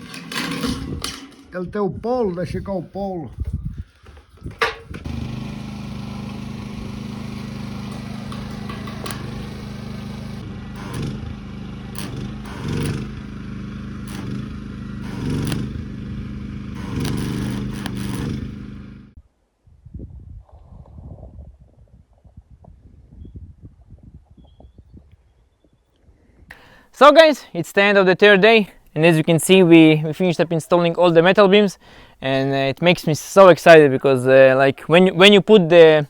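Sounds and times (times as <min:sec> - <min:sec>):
scrapes and clanks: 0:00.0 - 0:01.6, 0:16.8 - 0:18.7
small engine running: 0:04.9 - 0:19.2.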